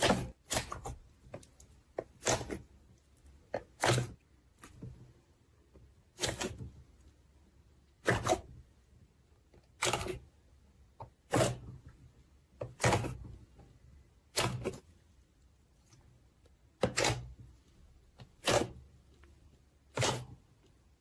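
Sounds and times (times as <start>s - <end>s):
slime squelching: 0.0s - 5.3s, 6.0s - 7.2s, 10.9s - 21.0s.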